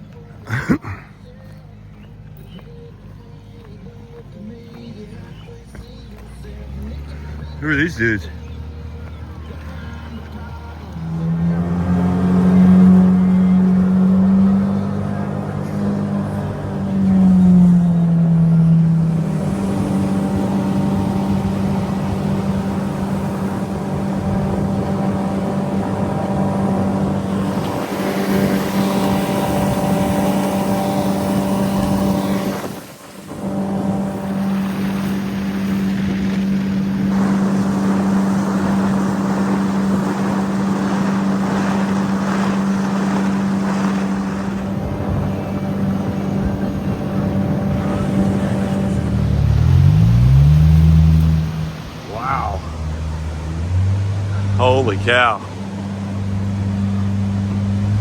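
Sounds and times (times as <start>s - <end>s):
outboard motor running: 5.2s - 58.0s
water and wind rushing: 6.8s - 58.0s.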